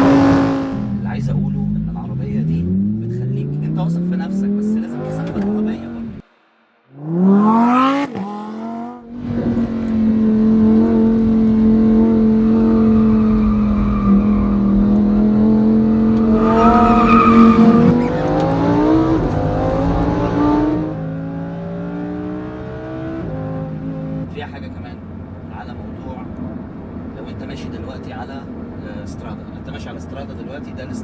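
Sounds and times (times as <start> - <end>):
sports car engine revving: 0.0 - 6.2, 7.0 - 24.4.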